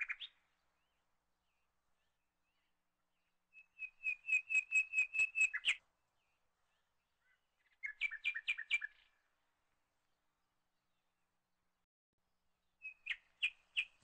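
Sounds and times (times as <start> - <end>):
bird singing high chirps: 0.0 - 1.0, 3.5 - 5.8, 6.7 - 9.2, 12.7 - 14.0.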